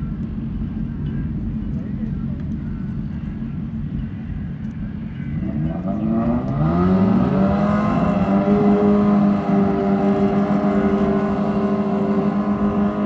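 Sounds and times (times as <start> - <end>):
motorcycle engine revving: 5.4 - 13.0.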